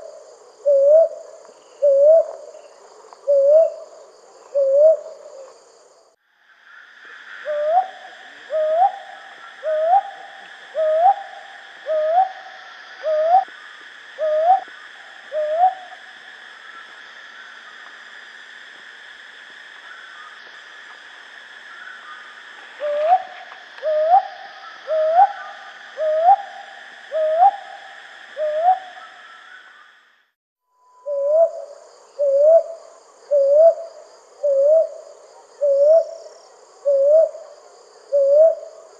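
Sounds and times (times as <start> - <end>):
owl hooting: 0.6 - 1.2, 1.8 - 2.5, 3.3 - 3.9, 4.5 - 5.5, 7.2 - 13.5, 14.2 - 16.0, 22.8 - 27.8, 28.4 - 29.8, 30.9 - 35.0, 35.6 - 36.2, 36.8 - 37.4, 38.1 - 38.8.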